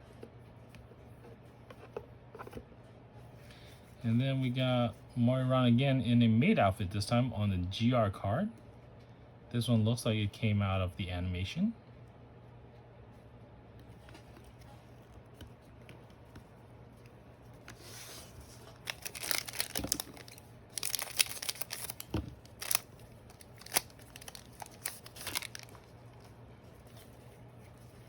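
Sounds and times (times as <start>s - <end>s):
wrapper tearing and crinkling: 18.6s - 26.3s.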